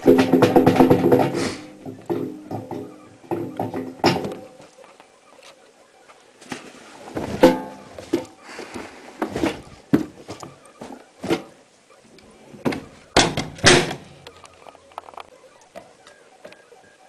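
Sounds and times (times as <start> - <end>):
washing machine knocks and thuds: 0.0 - 1.4.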